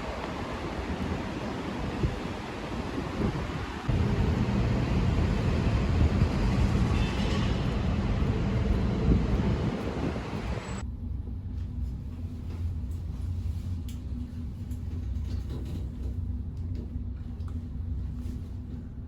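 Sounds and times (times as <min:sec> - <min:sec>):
moving vehicle rumble: 0:00.0 - 0:13.4.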